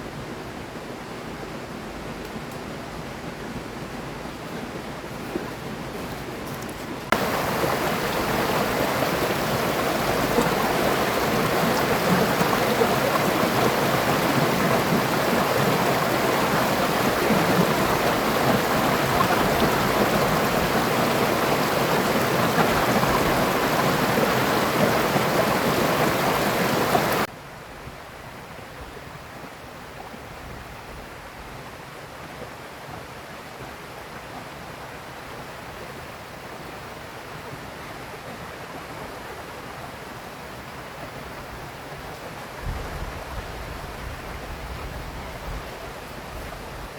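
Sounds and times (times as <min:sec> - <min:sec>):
river rushing over rocks: 0:07.0 - 0:27.3.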